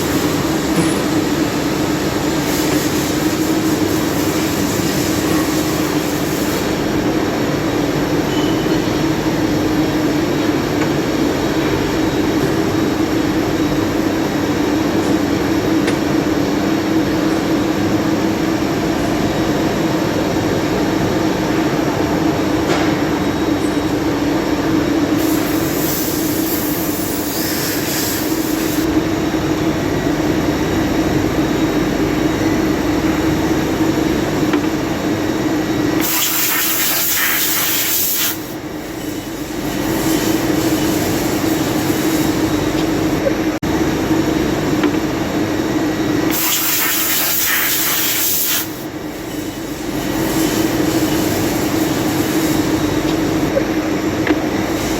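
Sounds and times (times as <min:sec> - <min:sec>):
hissing spray: 0:25.2 - 0:28.9, 0:36.0 - 0:42.4, 0:46.3 - 0:52.8.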